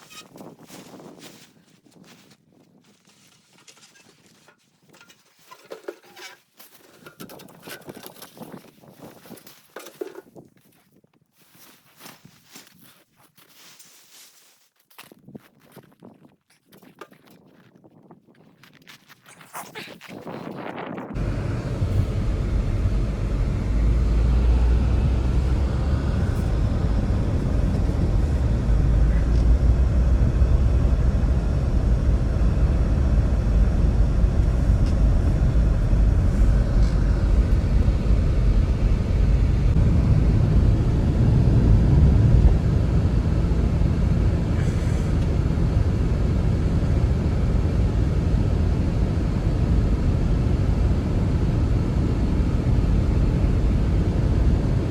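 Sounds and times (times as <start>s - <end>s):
strong wind blowing: 20.0s - 54.9s.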